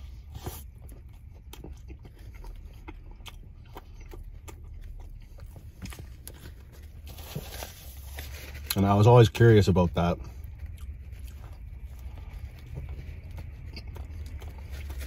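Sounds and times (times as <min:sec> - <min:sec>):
biting a sandwich: 0:00.0 - 0:08.9, 0:10.2 - 0:15.0
wet chewing mouth clicks: 0:10.6 - 0:15.0.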